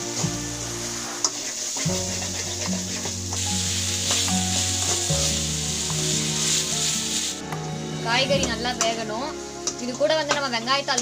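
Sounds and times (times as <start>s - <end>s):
vegetables sizzling in hot oil: 0.0s - 7.5s
spatula scraping a pan: 0.1s - 7.3s.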